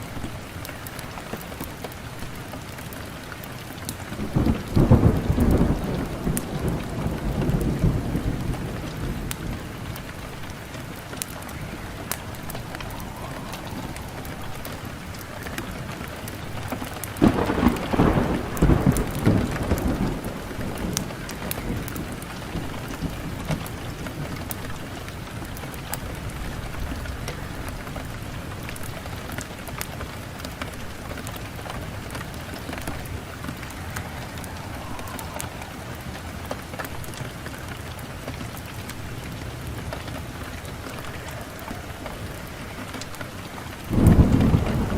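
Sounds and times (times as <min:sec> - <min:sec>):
wood fire crackling: 0:00.0 - 0:44.9
low rumble: 0:11.4 - 0:16.2.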